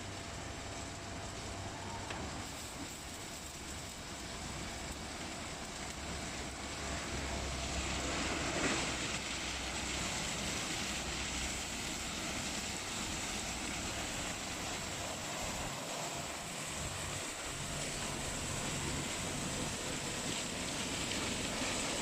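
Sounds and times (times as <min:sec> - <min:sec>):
car wash machine rushing: 0:06.8 - 0:22.0.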